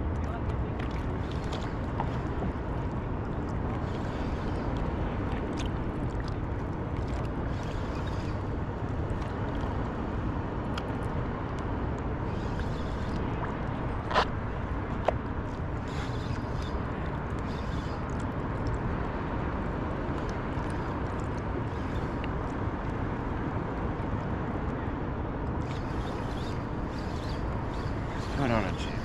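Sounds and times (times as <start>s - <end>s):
open water rumbling: 0.0s - 29.0s
small ticks: 15.8s - 18.8s, 25.6s - 29.0s.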